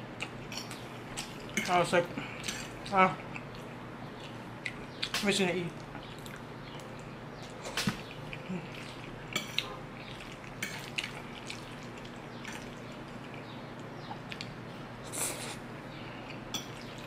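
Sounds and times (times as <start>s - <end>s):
mouth chewing: 2.3s - 15.6s.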